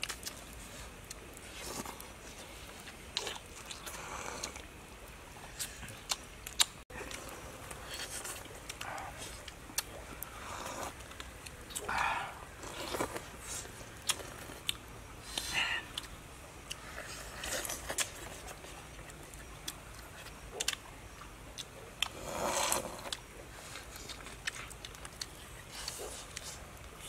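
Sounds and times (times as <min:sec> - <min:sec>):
chewing and biting: 0:00.0 - 0:04.8, 0:05.4 - 0:27.0
slurping from a bowl: 0:22.1 - 0:23.9.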